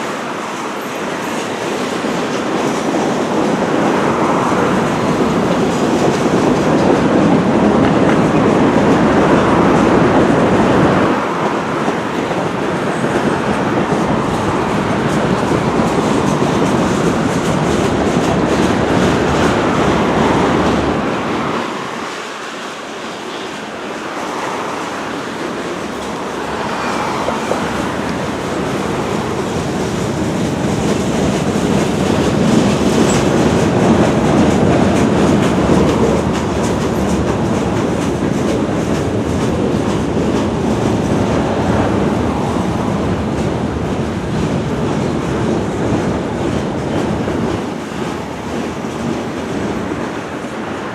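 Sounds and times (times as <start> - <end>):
freight train wheels rumbling: 0.0 - 50.9.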